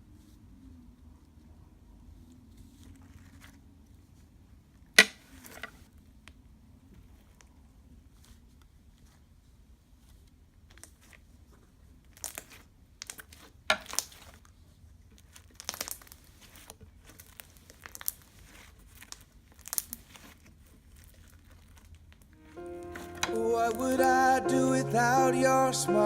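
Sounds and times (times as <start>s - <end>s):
slime crackling and popping: 15.4s - 16.2s, 18.9s - 20.3s.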